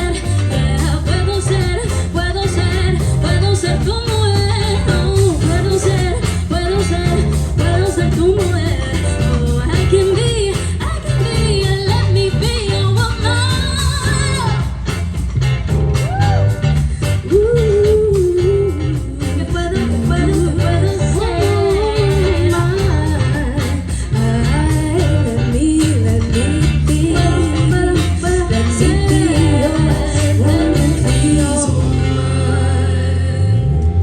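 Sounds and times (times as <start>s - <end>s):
live band playing pop song: 0.0s - 34.0s
person singing: 17.2s - 34.0s.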